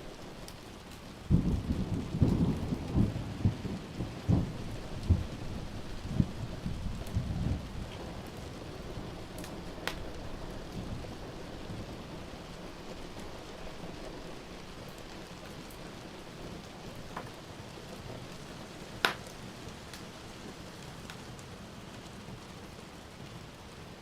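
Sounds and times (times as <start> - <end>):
steady rain: 0.0 - 24.0
wood fire crackling: 0.0 - 24.0
low rumble of thunder: 1.1 - 18.9.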